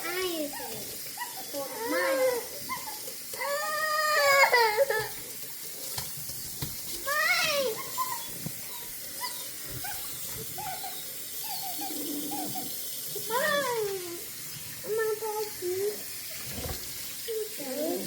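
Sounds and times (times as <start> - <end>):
running bath water: 0.0 - 18.0
puppies whimpering: 0.5 - 5.0, 7.5 - 13.8.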